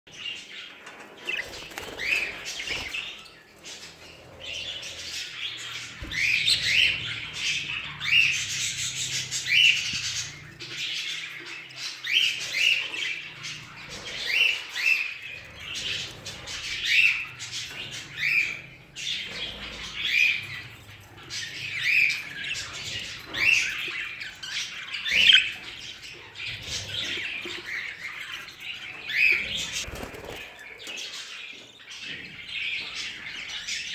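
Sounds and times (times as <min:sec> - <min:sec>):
budgerigars chattering: 0:01.2 - 0:31.4
sharp squawks and chirps: 0:19.2 - 0:28.2.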